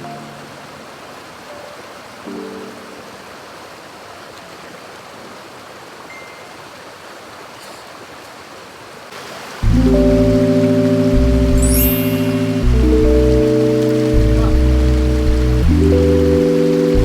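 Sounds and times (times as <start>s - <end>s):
mountain stream rushing: 0.0s - 17.0s
loud music: 9.7s - 17.0s.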